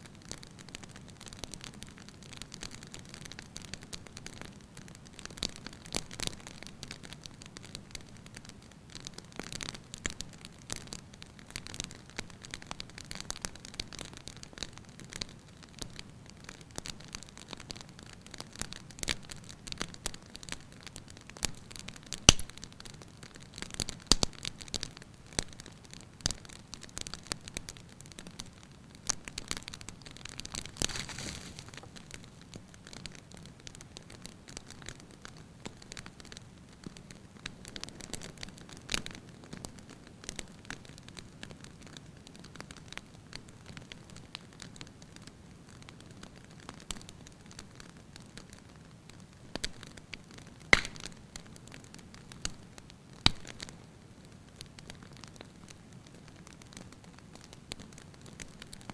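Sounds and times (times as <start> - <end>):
fire crackles and pops: 0.0 - 58.9
wood fire hiss and rumble: 0.0 - 58.9
sharp snap of fire: 22.2 - 22.7, 23.8 - 25.5, 30.4 - 32.5, 50.7 - 52.6, 53.2 - 53.7.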